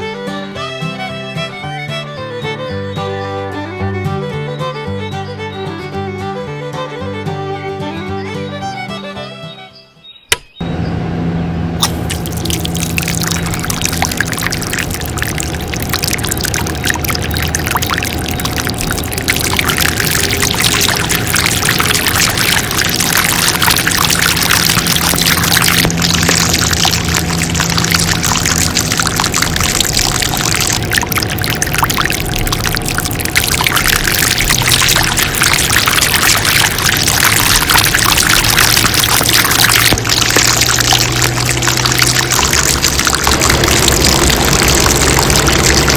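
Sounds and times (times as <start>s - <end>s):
small pump engine humming: 10.6s - 45.9s
water gushing from pump outlet: 11.8s - 45.9s.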